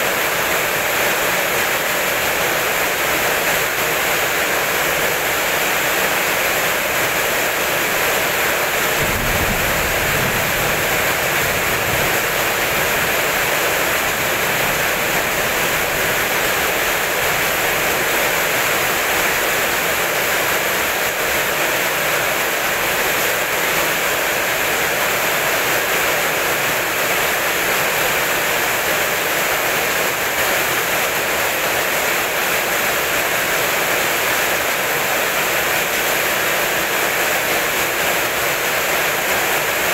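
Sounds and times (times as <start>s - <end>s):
heavy rain: 0.0s - 39.9s
low rumble of thunder: 9.0s - 12.7s.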